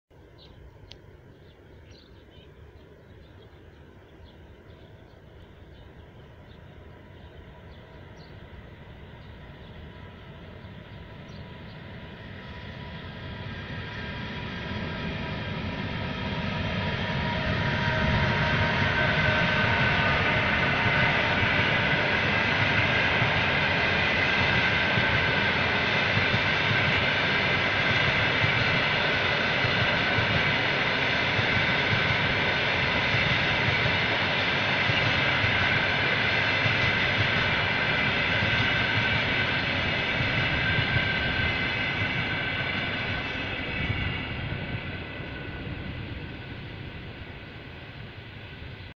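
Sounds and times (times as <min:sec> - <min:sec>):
train coaches rumbling on rails: 0:01.2 - 0:48.9.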